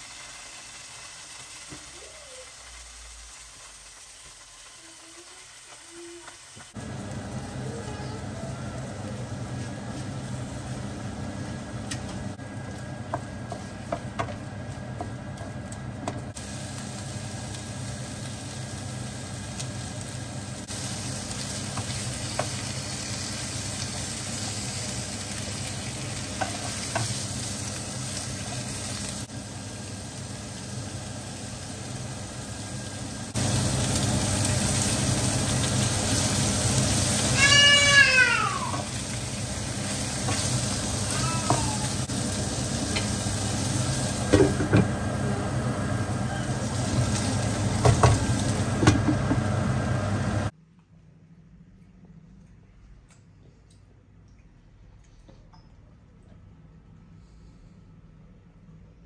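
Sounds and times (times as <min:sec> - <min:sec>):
food sizzling in a pan: 0:00.0 - 0:50.5
cat meowing: 0:37.4 - 0:38.8.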